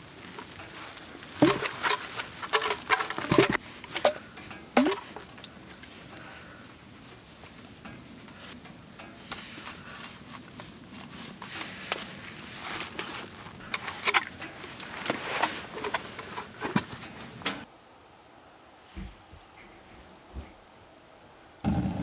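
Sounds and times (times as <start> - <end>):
rustling: 0.0 - 17.7
handling clicks and knocks: 0.3 - 6.3, 10.4 - 17.7.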